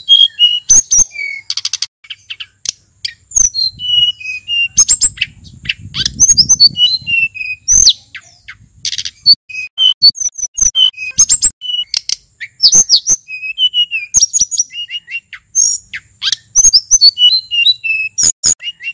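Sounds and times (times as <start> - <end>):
bird singing whistled notes: 0.0 - 18.9
bird short sharp chips: 7.1 - 18.9.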